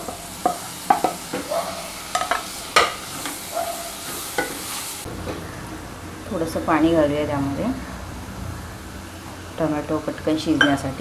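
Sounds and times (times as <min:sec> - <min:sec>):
spatula scraping and knocking pan: 0:00.0 - 0:04.8
frying sizzle: 0:00.0 - 0:11.0.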